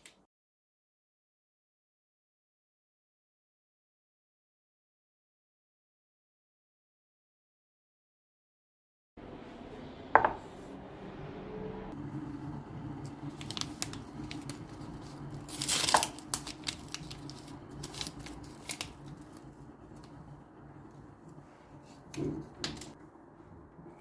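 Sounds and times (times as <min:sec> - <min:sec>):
paper or plastic crinkling: 0:13.2 - 0:20.2.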